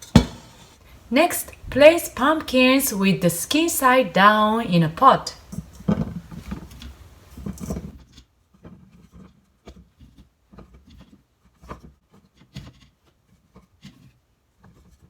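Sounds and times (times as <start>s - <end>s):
pumpkin pieces knocking into pot: 0.0s - 0.8s.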